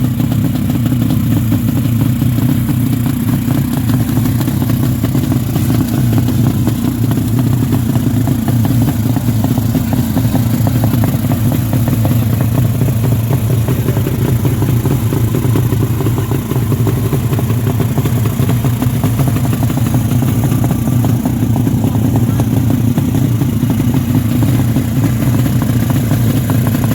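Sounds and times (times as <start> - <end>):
motorcycle engine running steadily: 0.0 - 26.9.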